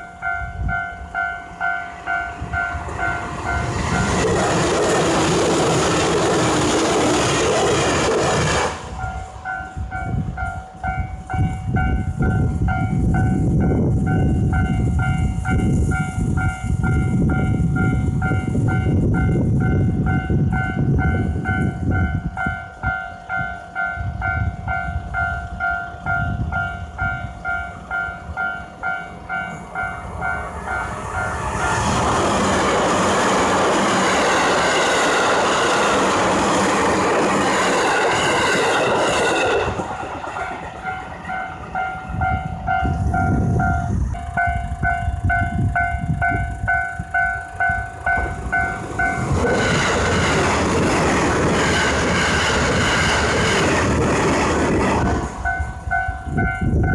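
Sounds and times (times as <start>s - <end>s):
train cars rushing by: 0.0s - 24.4s, 26.0s - 56.9s
train wheels clacking over rail joints: 2.9s - 9.1s, 47.8s - 55.6s.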